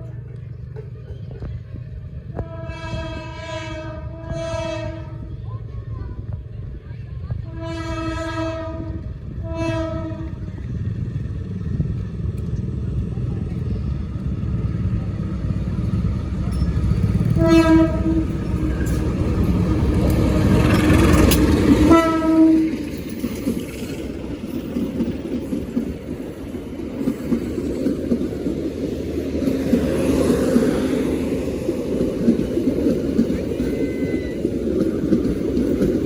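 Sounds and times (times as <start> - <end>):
carriages rolling past: 0.0 - 2.4, 10.0 - 36.0
train rumble: 0.0 - 36.0
locomotive horn blasts: 2.3 - 5.3, 7.4 - 10.5, 17.2 - 19.1, 21.8 - 22.8.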